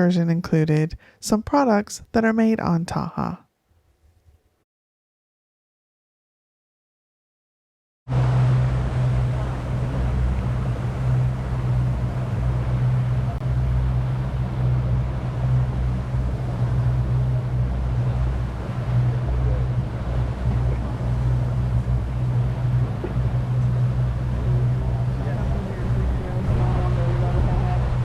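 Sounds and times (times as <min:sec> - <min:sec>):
boat motor humming: 0:08.1 - 0:28.0.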